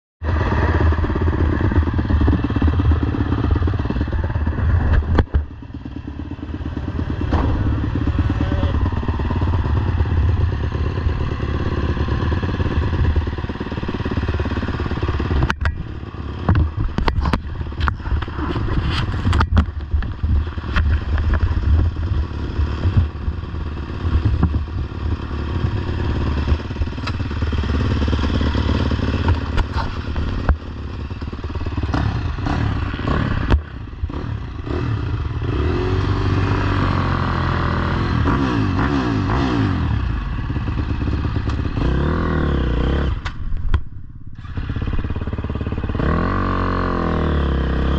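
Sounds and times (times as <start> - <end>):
motocross bike engine revving: 0.2 - 43.4, 44.4 - 47.9
sharp knocks and clatter: 7.1 - 8.0, 15.2 - 23.4, 24.0 - 25.8.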